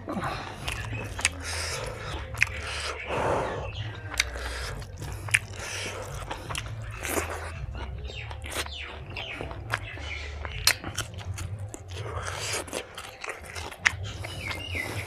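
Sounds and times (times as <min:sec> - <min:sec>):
close chewing with mouth sounds: 0:00.0 - 0:15.0.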